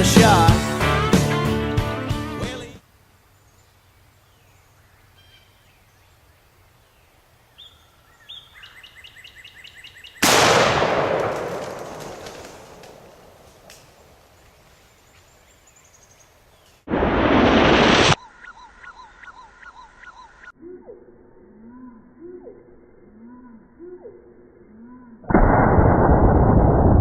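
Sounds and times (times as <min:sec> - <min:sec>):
shotgun blast with echo: 0:10.2 - 0:13.4
rattling turkey calls: 0:18.2 - 0:20.6.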